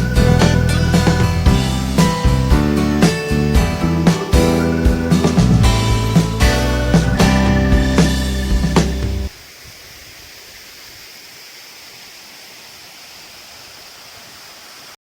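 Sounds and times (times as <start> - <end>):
guitar music: 0.0 - 9.3
waterfall rushing: 0.0 - 15.0.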